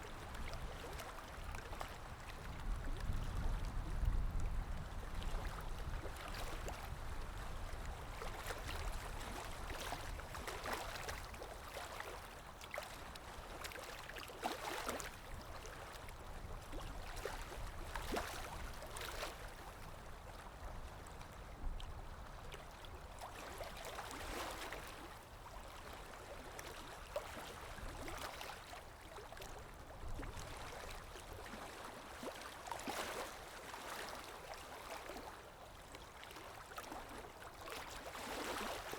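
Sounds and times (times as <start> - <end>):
muffled underwater water: 0.0 - 14.4.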